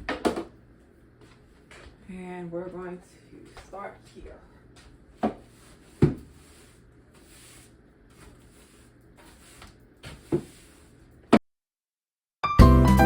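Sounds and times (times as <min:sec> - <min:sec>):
broom sweeping a hard floor: 0:04.8 - 0:11.3.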